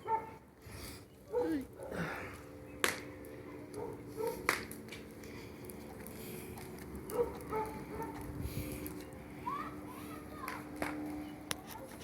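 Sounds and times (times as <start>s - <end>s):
bonfire crackling: 0.0s - 12.0s
sharp pops from fire: 2.7s - 3.3s, 4.2s - 5.8s, 10.4s - 11.2s.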